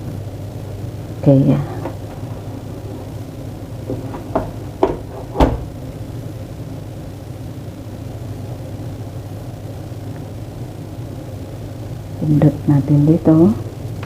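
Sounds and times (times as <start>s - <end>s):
steady low hum: 0.0s - 14.0s
coffee maker knocks and clicks: 3.9s - 5.7s.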